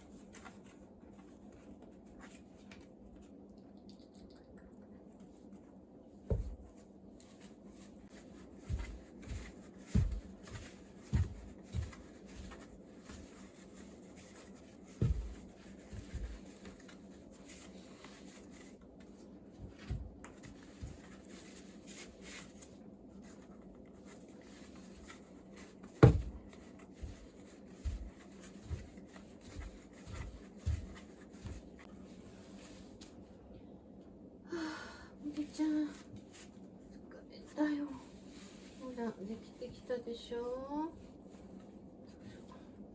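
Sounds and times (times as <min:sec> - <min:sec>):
soft thumps and knocks: 0:06.2 - 0:06.8, 0:08.6 - 0:13.3, 0:14.5 - 0:16.6, 0:25.9 - 0:31.9.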